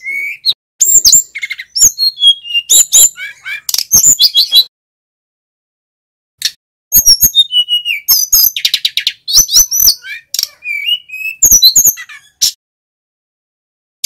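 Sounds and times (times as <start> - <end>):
bird singing: 0.0 - 4.7, 6.9 - 12.6.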